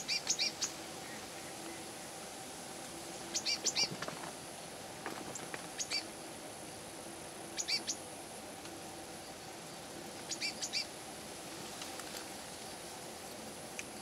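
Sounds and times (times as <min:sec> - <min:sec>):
faint background hum: 0:00.0 - 0:14.0
small bird chirping: 0:03.3 - 0:03.9, 0:07.6 - 0:08.0, 0:10.3 - 0:10.9.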